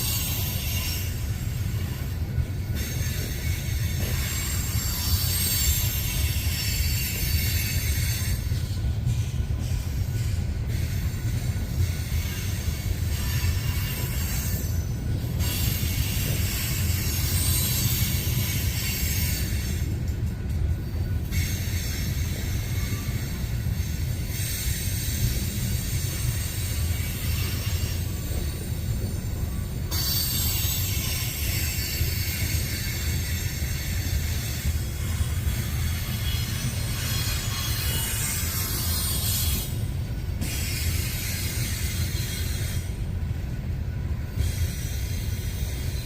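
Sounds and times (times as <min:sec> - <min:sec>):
steel wheels rumbling on rail: 0:00.0 - 0:46.0
wheel squeal: 0:21.2 - 0:43.0.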